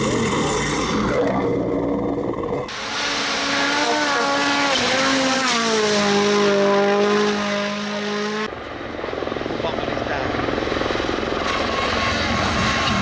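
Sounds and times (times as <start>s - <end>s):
car engine at high revs: 2.7s - 8.5s, 11.4s - 13.0s
tyre and road noise: 11.3s - 13.0s.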